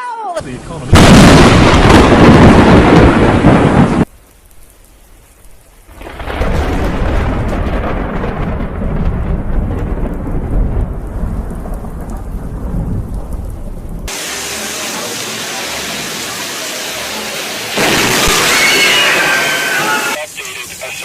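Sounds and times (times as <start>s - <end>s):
rain falling: 0.4s - 21.0s
loud thunderclap: 0.9s - 4.1s, 5.9s - 14.2s, 17.8s - 19.2s
rumbling thunder: 0.9s - 4.1s, 5.9s - 14.2s.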